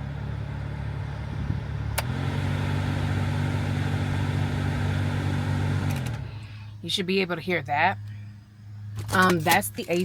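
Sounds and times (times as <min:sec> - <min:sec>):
blower motor humming: 0:00.0 - 0:06.8.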